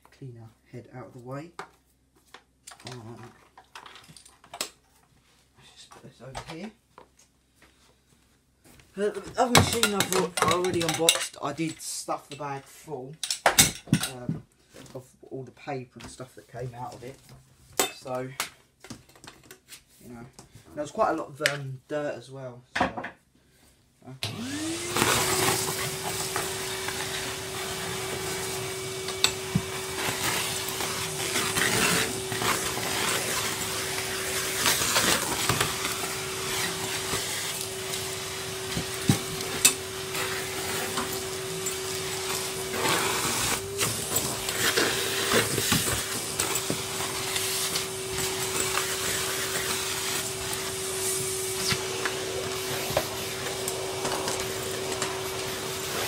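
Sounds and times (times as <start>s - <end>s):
vacuum cleaner motor: 24.2s - 56.0s.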